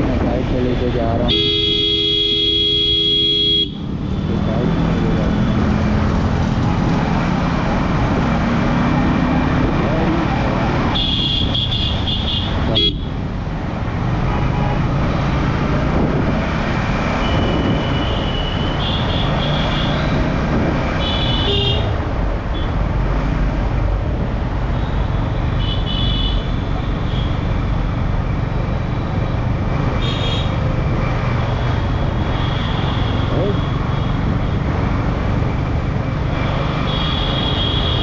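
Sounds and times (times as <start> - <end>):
vehicle horns tooting: 1.2 - 3.8, 10.9 - 13.1
wind noise on microphone: 15.5 - 18.3, 20.0 - 21.0.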